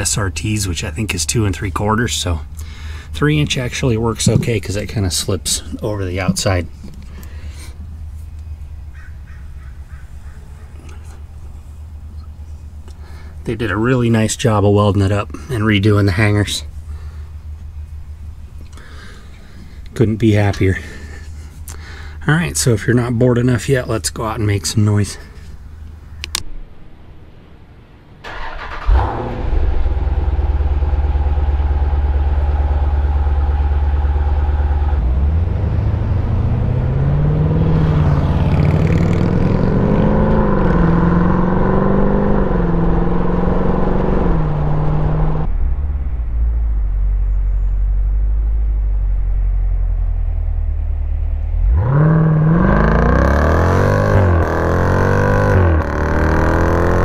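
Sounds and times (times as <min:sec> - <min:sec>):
engine idling and revving: 0:00.0 - 0:23.7, 0:28.3 - 0:57.0
engine starting: 0:28.2 - 0:30.4.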